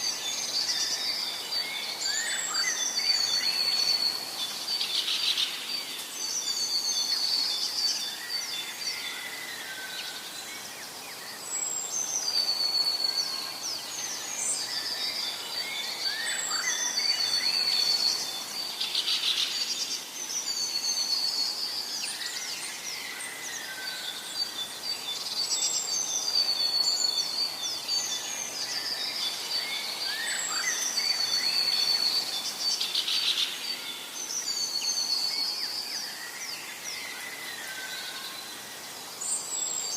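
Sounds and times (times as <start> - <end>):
birds singing whistles and trills: 0.0 - 39.9
faint steady hiss: 0.0 - 39.9.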